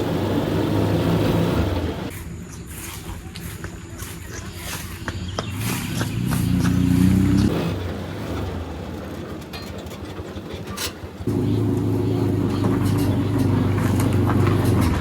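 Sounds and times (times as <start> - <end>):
small vehicle engine revving: 0.0 - 2.1, 5.5 - 9.3, 11.2 - 15.0.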